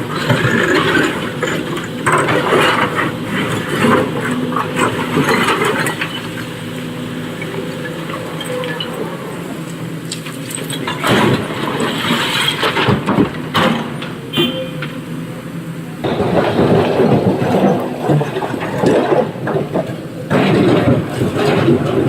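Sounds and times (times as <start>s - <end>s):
excavator diesel engine running: 0.0s - 22.0s
rock clattering and scraping: 16.0s - 22.0s.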